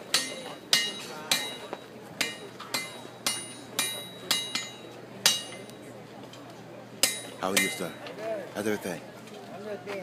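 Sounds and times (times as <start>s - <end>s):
hammer striking metal on anvil: 0.0s - 5.8s, 7.0s - 8.0s.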